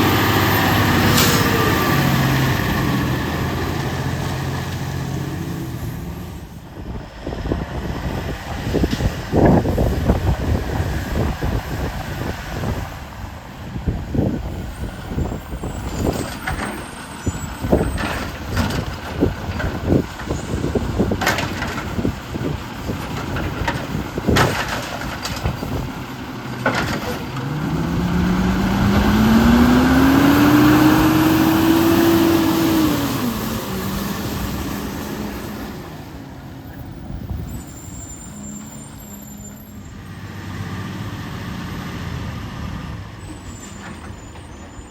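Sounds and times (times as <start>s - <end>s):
garbage truck engine revving: 0.0s - 13.3s, 14.1s - 38.9s, 39.8s - 44.4s
metallic clanks and knocks: 21.0s - 22.2s, 22.9s - 25.9s, 26.5s - 27.5s.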